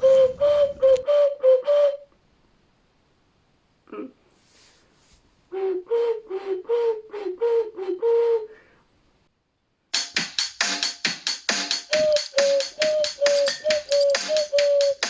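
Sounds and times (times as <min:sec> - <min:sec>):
clay ocarina notes: 0:00.0 - 0:02.1, 0:05.6 - 0:08.5, 0:11.7 - 0:15.0.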